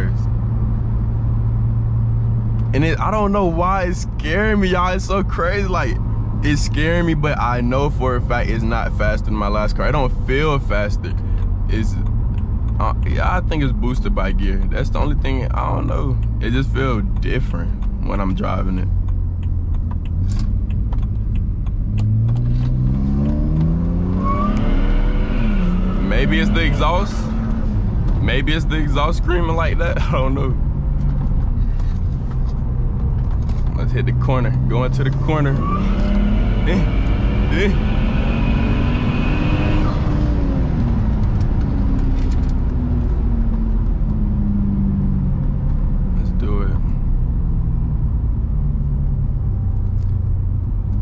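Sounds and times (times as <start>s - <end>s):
car engine accelerating: 0.0s - 51.0s.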